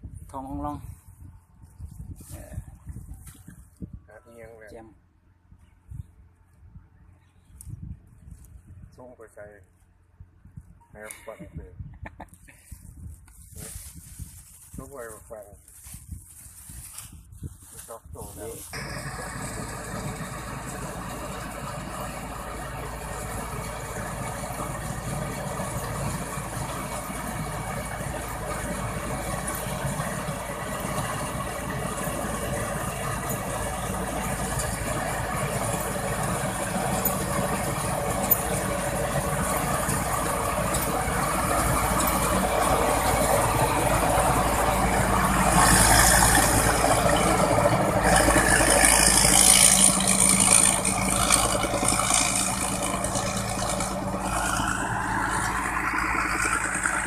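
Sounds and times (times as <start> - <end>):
rattle of harvester mechanism: 17.8 - 57.0
combine harvester engine drone: 18.3 - 57.0.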